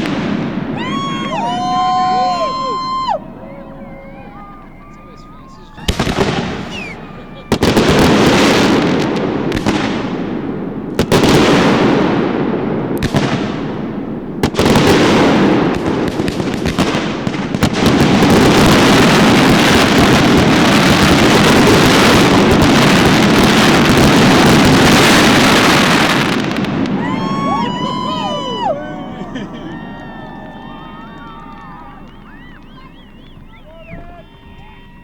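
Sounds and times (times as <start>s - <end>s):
fireworks booming and crackling: 0.0s - 3.2s, 5.4s - 34.9s
people whooping: 0.7s - 8.9s, 24.2s - 35.0s.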